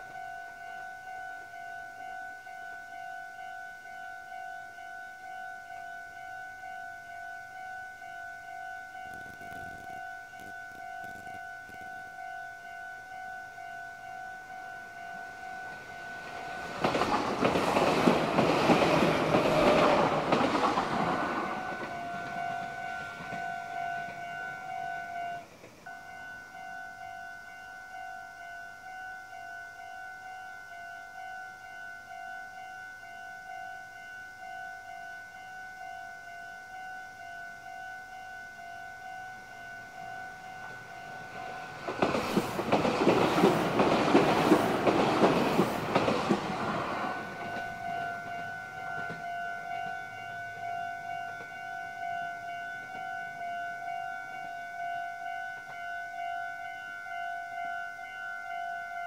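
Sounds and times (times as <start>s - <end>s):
level crossing alarm ringing: 0.0s - 59.0s
electric train rushing past: 14.9s - 25.9s, 39.7s - 52.2s
train wheel clatter: 15.7s - 25.8s, 40.6s - 50.0s.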